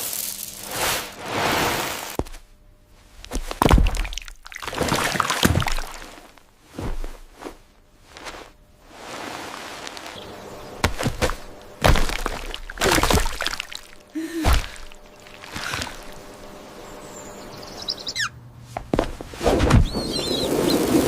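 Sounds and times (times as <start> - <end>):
steady hiss: 0.0 - 3.4
sharp cracks and thuds: 3.3 - 7.0, 10.8 - 13.8.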